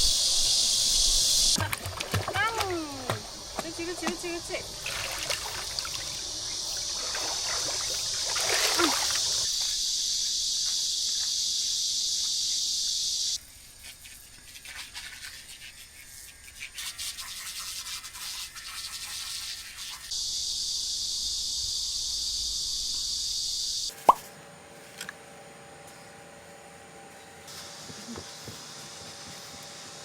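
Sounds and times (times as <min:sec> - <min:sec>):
cicadas droning: 0:00.0 - 0:30.0
stream water trickling: 0:01.6 - 0:09.5.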